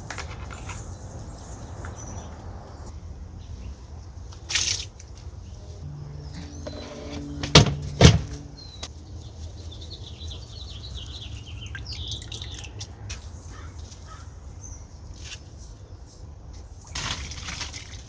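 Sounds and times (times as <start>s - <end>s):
low steady rumble: 5.5s - 8.9s
sharp knocks: 6.4s - 8.5s.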